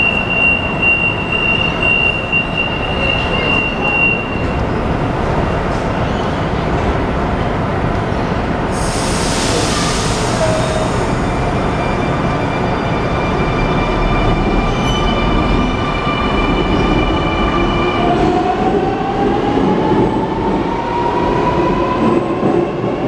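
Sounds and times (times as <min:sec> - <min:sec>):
air hiss: 0:08.7 - 0:11.1.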